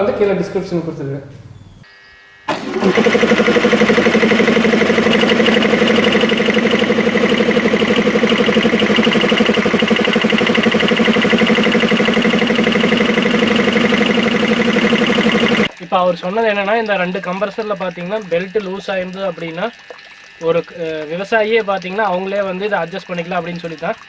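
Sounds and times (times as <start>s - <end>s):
air compressors pulsing: 0.0s - 1.8s, 2.5s - 15.7s.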